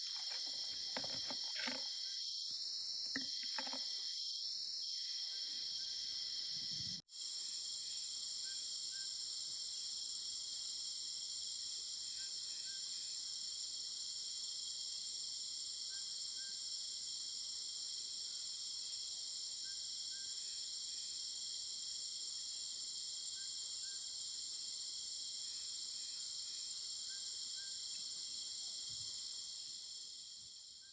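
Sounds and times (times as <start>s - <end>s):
insects trilling: 0.0s - 9.4s.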